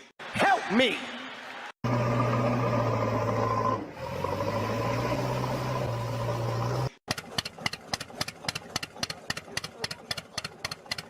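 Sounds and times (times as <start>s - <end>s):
motor drone: 1.8s - 7.0s.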